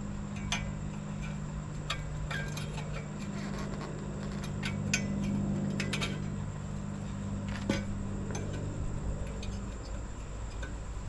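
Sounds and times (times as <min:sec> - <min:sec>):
steady low hum: 0:00.0 - 0:11.0
metal tools clinking: 0:00.3 - 0:06.5.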